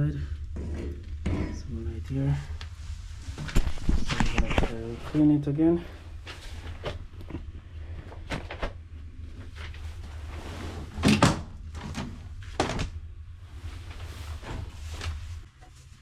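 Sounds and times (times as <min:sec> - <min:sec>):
steady low hum: 0:00.0 - 0:16.0
metal knocks and clunks: 0:00.5 - 0:01.8.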